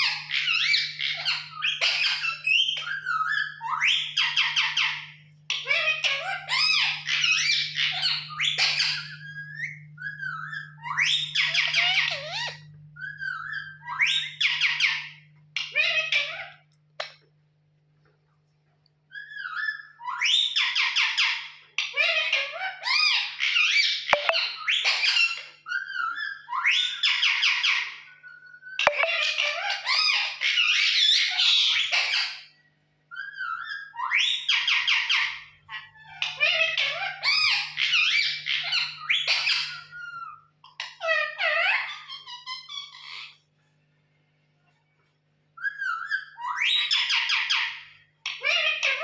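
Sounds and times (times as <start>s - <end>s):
parrot whistling and squawking: 0.0s - 16.6s, 19.1s - 43.5s, 45.6s - 49.0s
parrot chattering and whistling: 19.2s - 32.5s, 45.6s - 49.0s.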